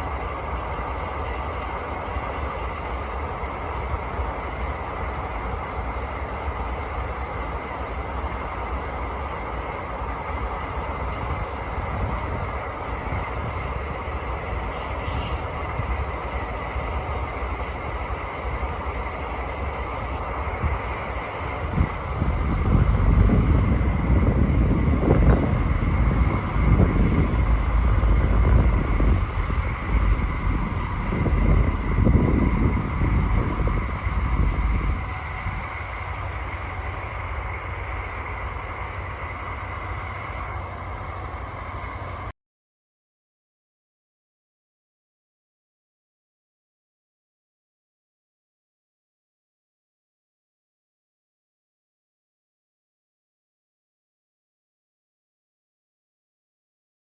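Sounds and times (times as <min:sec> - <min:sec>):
heavy pulsing low rumble: 0:00.0 - 0:42.3
locomotive diesel engines at full throttle: 0:00.0 - 0:42.3
steady high whine: 0:00.0 - 0:42.3.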